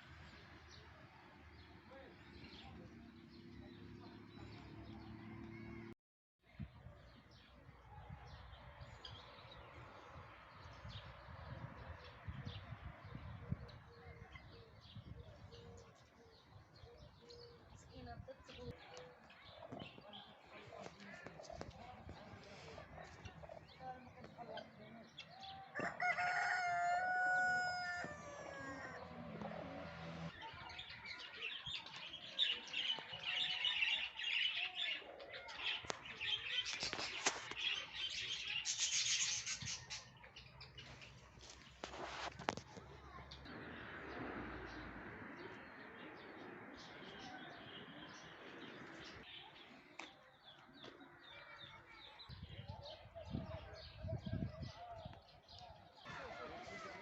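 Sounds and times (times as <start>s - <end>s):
background murmur: 13.2s - 26.0s, 39.6s - 57.0s
rooster crowing: 25.7s - 29.3s
small birds chirping: 30.4s - 57.0s.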